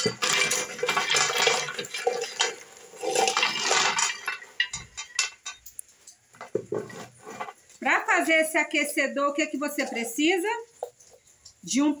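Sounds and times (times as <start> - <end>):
metal and crockery clinking: 0.0 - 5.8.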